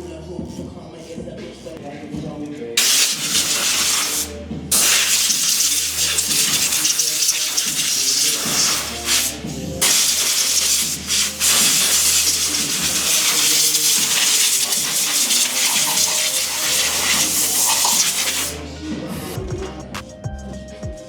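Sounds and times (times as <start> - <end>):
background music: 0.0 - 21.0
water spraying hard: 2.8 - 18.6.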